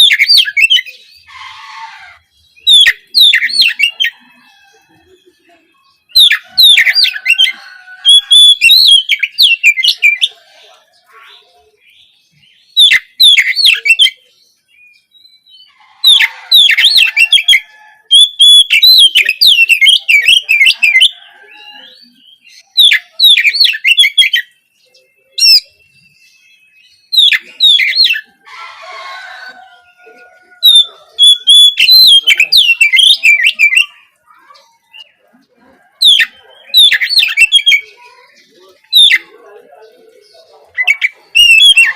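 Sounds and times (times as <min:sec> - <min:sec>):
bird whistling song with trills: 0:00.0 - 0:01.3, 0:02.5 - 0:05.2, 0:06.0 - 0:10.4, 0:12.4 - 0:28.3, 0:30.6 - 0:34.0, 0:36.0 - 0:37.9, 0:40.8 - 0:41.9.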